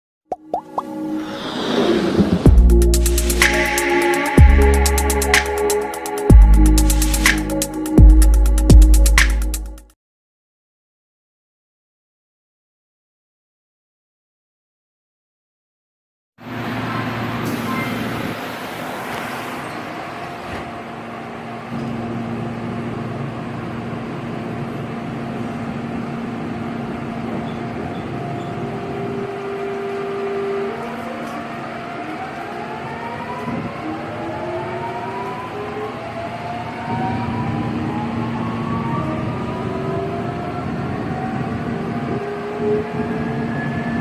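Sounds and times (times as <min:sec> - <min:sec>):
rising motor whine: 0:00.8 - 0:07.4
train running noise: 0:01.0 - 0:07.5, 0:16.5 - 0:44.0.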